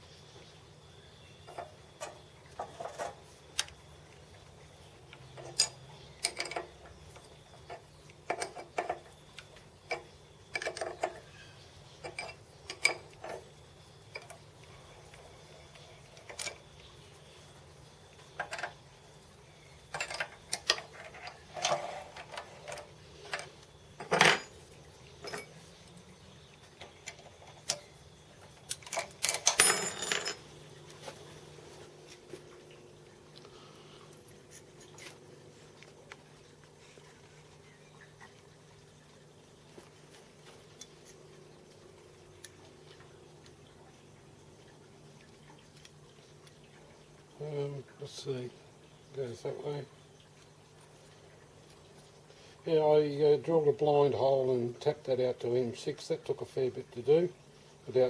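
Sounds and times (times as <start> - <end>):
metal tools clinking on workbench: 19.9 - 25.6, 28.7 - 30.6.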